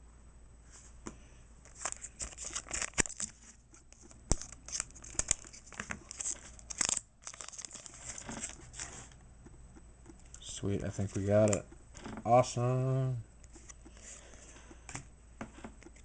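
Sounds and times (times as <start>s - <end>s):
foil wrapper crinkling and tearing: 1.7s - 3.6s, 4.3s - 9.1s.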